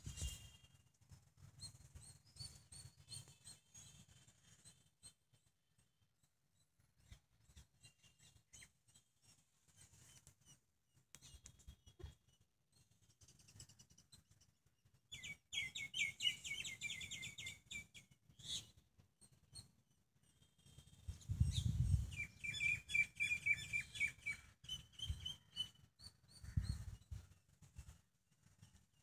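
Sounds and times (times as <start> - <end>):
bird chirps: 0.0 - 5.9, 6.5 - 14.5, 15.1 - 27.3
songbird trilling: 21.4 - 25.7.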